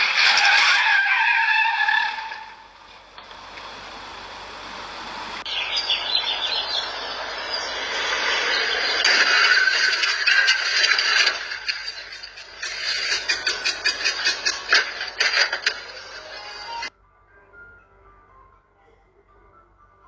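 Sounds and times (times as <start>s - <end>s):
car tyres squealing: 0.0s - 3.8s, 5.4s - 16.9s
road traffic noise: 0.0s - 16.9s.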